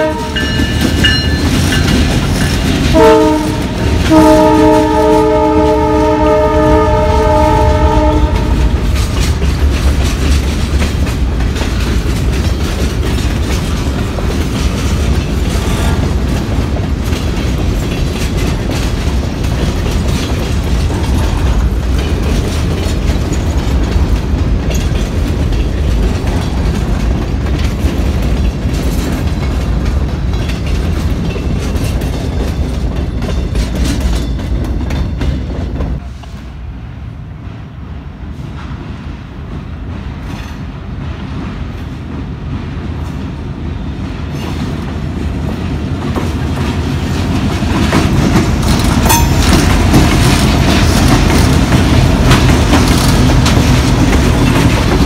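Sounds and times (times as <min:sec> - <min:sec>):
train horn: 0:00.0 - 0:00.8, 0:02.8 - 0:09.0
wheels clacking over rail joints: 0:00.0 - 0:36.1, 0:39.5 - 0:55.0
freight train rumbling past: 0:00.0 - 0:55.0.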